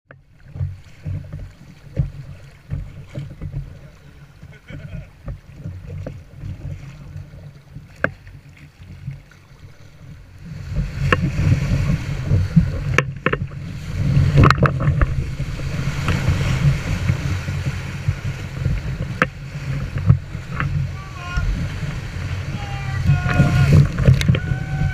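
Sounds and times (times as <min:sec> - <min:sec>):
water rushing and splashing: 0:00.1 - 0:24.9
wind rumbling on microphone: 0:00.3 - 0:24.9.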